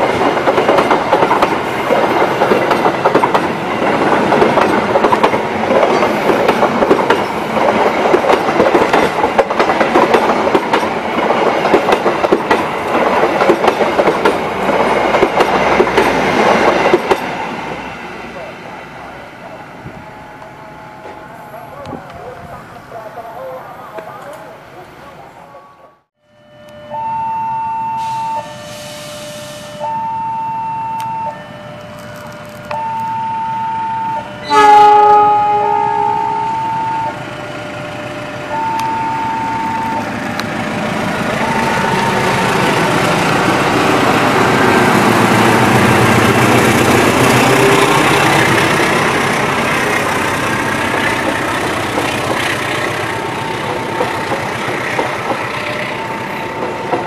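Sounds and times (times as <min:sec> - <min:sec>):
train rumbling past: 0:00.0 - 0:26.0, 0:31.3 - 0:57.0
level crossing alarm two tones: 0:26.3 - 0:32.0, 0:32.7 - 0:37.7, 0:38.5 - 0:40.2
locomotive horn blast: 0:32.8 - 0:40.0, 0:47.0 - 0:48.7.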